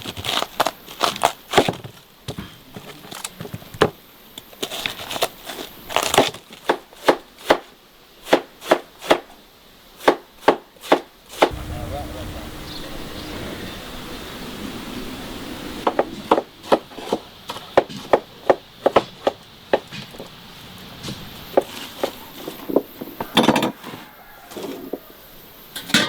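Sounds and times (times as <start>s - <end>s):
steady low hum: 11.5s - 17.0s.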